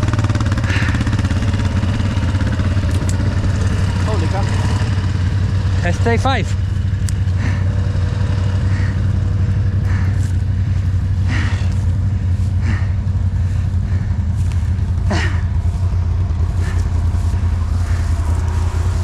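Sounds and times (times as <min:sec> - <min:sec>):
atv engine idling: 0:00.0 - 0:19.0.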